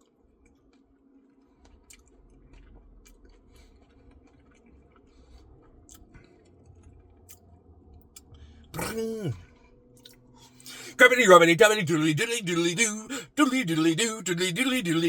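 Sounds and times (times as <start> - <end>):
mouth chewing with wet clicks: 0.0 - 8.4, 10.0 - 10.2
short falling vocal sound: 8.8 - 9.4.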